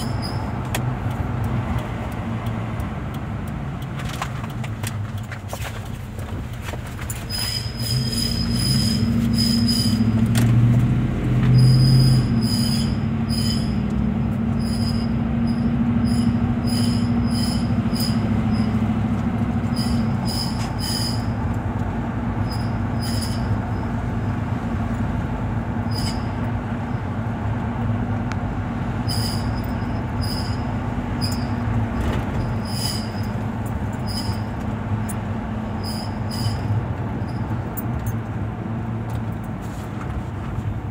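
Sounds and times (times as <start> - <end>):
high-pitched wheel squeals: 0.0 - 0.6, 7.1 - 10.3, 11.4 - 21.6, 22.3 - 24.0, 25.8 - 27.1, 29.0 - 38.2
low truck rumble: 0.0 - 40.9.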